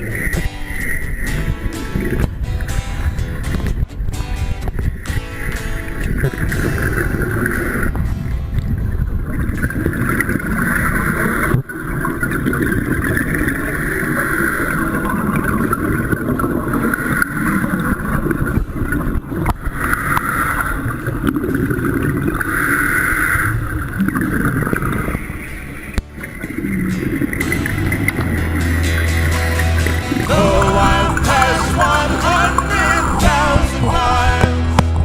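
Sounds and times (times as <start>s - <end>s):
wind noise: 0.0s - 14.6s
water rushing: 29.8s - 33.6s
boat motor running: 30.0s - 33.6s.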